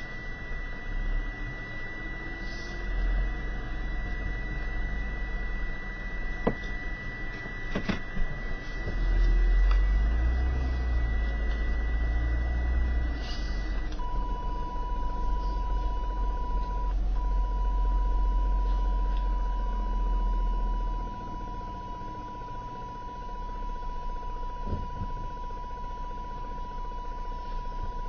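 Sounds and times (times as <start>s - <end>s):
low hum: 0.0s - 28.0s
steady electronic tone: 0.0s - 28.0s
radio hiss: 2.0s - 5.0s, 12.9s - 13.9s.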